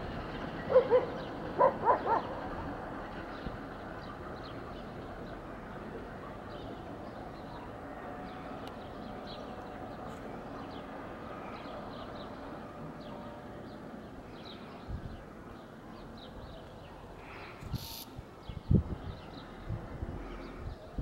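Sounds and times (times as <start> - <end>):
small birds chirping: 6.4 - 19.6.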